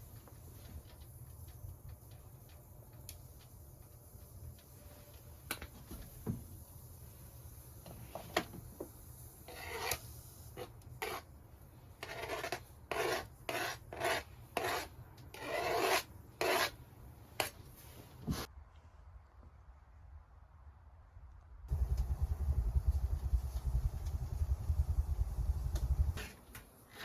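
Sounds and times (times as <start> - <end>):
rasping scraping strokes: 9.4 - 11.3, 12.0 - 16.8.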